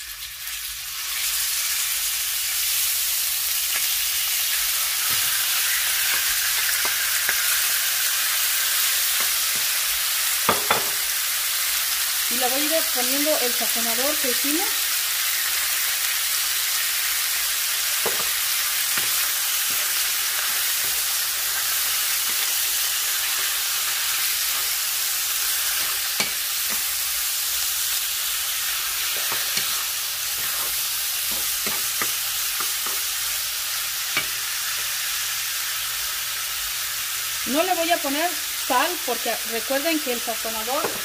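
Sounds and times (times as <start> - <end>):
chicken sizzling in hot oil: 0.0 - 41.0
wooden spatula scraping a pan: 29.0 - 31.9.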